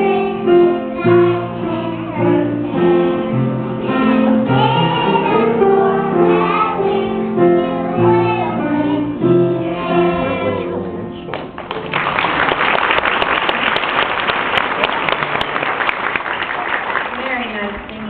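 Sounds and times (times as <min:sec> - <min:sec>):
children singing: 0:00.0 - 0:11.2
instrumental accompaniment: 0:00.0 - 0:11.7
audience applause: 0:11.3 - 0:18.0.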